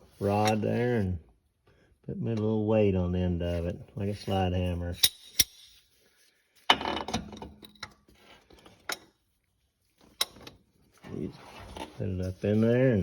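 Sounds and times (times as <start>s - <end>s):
metal tools rattling: 4.9s - 5.8s
metal tools clinking: 5.0s - 5.9s.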